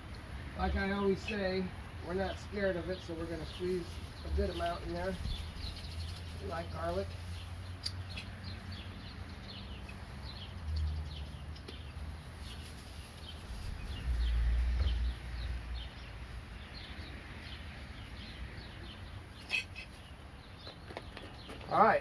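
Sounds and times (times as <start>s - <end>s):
small birds chirping: 0.0s - 22.0s
low rumble on microphone: 13.5s - 16.2s.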